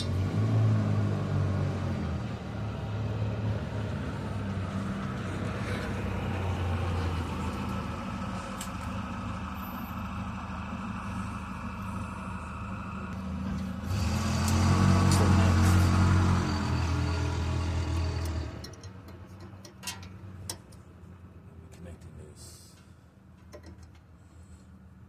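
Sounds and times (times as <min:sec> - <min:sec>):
engine hum: 0:00.0 - 0:25.0.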